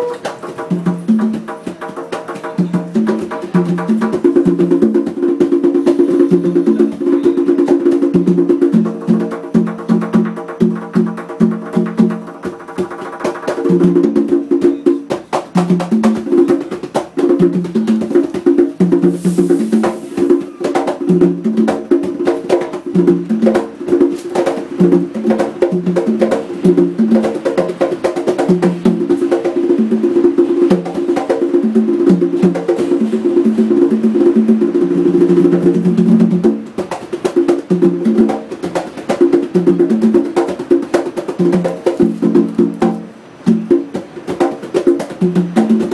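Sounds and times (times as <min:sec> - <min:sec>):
conga drums played by hand: 0:00.0 - 0:45.9.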